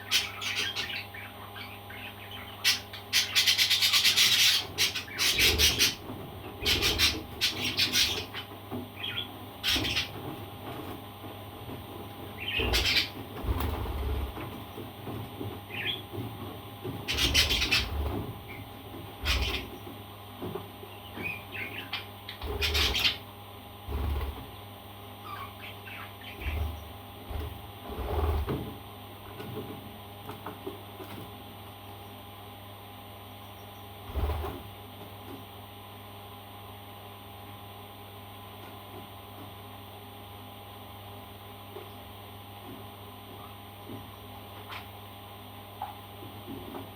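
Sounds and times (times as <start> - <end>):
steady electrical hum: 0.0 - 46.9
parrot chirping softly: 25.2 - 26.8.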